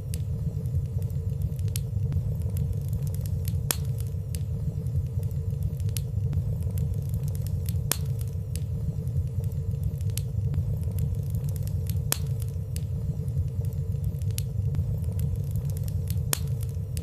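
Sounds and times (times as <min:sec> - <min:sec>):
fire crackling: 0:00.0 - 0:17.0
low rumble of fire flames: 0:00.0 - 0:17.0.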